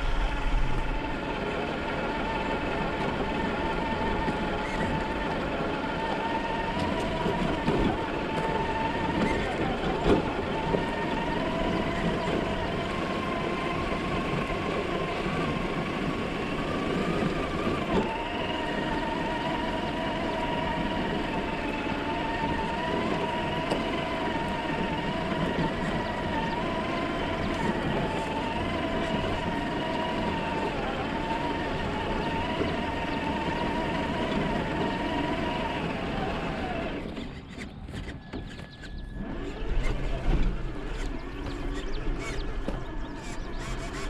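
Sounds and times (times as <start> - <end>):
toy car electric motor whining: 3.8 - 44.0.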